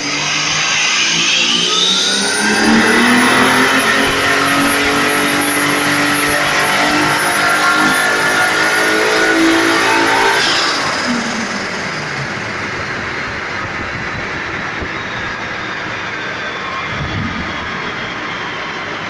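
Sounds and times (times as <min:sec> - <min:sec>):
steady rushing noise: 0:00.0 - 0:08.3
engine revving at high revs: 0:00.0 - 0:16.1.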